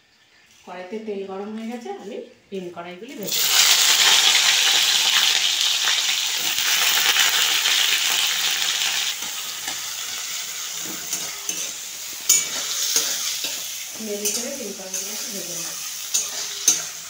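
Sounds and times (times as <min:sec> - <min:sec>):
beans sizzling in hot oil: 0:03.2 - 0:17.0
spatula knocking: 0:10.8 - 0:13.6.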